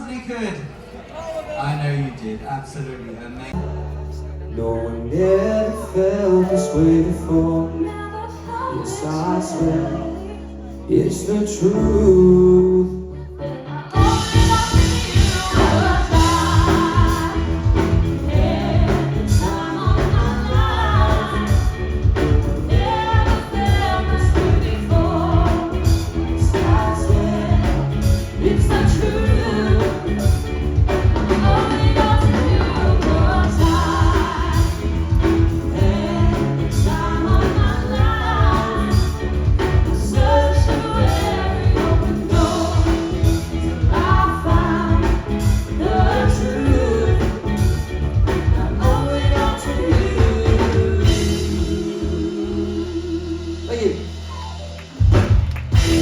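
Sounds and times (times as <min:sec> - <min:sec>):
person singing: 0:03.6 - 0:47.8
live band playing: 0:03.6 - 0:56.0.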